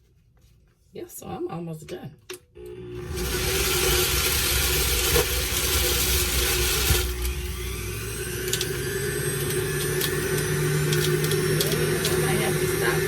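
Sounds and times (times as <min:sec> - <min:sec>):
juicer motor hum: 0:02.6 - 0:13.0
hissing grind of juicing fruit: 0:02.7 - 0:13.0.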